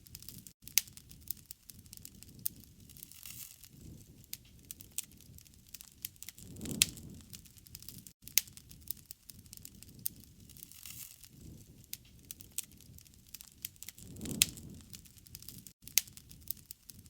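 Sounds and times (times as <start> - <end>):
campfire crackling: 0.0 - 17.0
sharp pops of burning wood: 0.1 - 17.0
low rumble: 6.4 - 7.5, 14.0 - 15.1.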